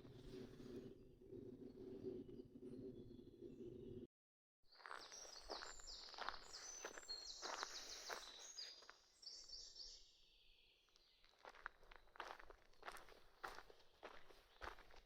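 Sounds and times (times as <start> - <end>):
footsteps crunching on forest floor: 4.8 - 9.0, 11.3 - 15.0.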